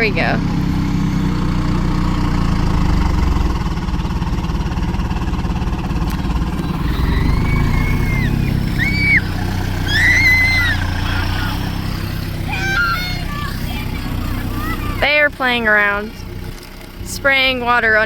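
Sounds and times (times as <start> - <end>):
vehicle engine humming: 0.0 - 18.0
high-pitched squeals: 6.5 - 15.0.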